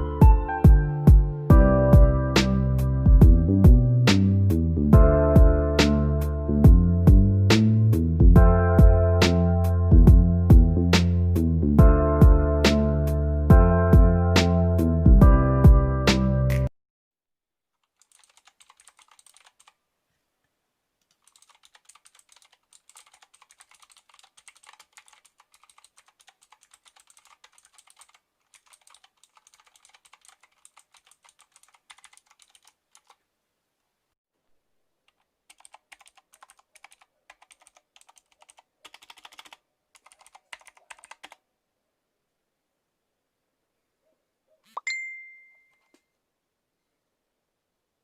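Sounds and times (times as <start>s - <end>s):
fast typing on mechanical keyboard: 17.8s - 19.8s, 21.1s - 33.2s, 35.1s - 41.4s.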